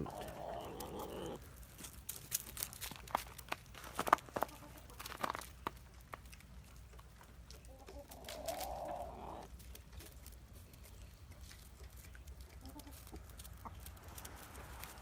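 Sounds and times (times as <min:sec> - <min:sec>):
hen calling: 0:00.0 - 0:01.4.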